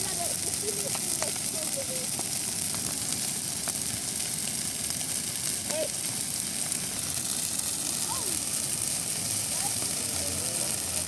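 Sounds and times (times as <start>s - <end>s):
faint voices: 0.0s - 2.9s, 7.7s - 11.0s
bonfire hissing and crackling: 0.0s - 11.0s.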